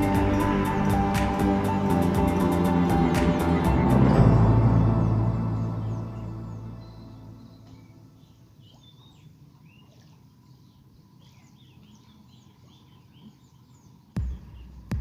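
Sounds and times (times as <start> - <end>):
faint outdoor background: 0.0 - 15.0
small birds chirping: 5.5 - 15.0.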